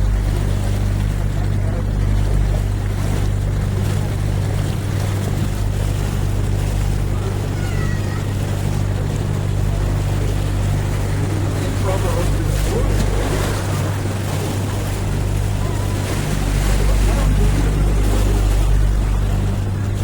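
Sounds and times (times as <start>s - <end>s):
boat motor humming: 0.0s - 20.0s
water washing along hull: 0.0s - 20.0s.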